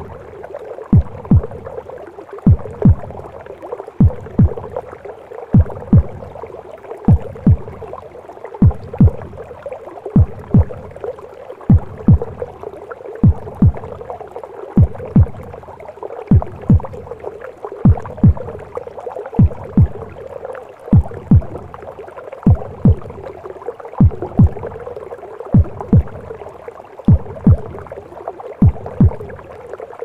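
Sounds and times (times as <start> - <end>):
heartbeat double thumps: 0.0 - 0.2, 0.9 - 1.8, 2.4 - 3.4, 4.0 - 4.8, 5.5 - 6.4, 7.1 - 8.0, 8.6 - 9.5, 10.2 - 11.0, 11.7 - 12.6, 13.2 - 14.1, 14.8 - 15.7, 16.3 - 17.2, 17.8 - 18.8, 19.4 - 20.2, 20.9 - 21.8, 22.4 - 23.4, 24.0 - 24.9, 25.5 - 26.4, 27.1 - 28.0, 28.6 - 29.5.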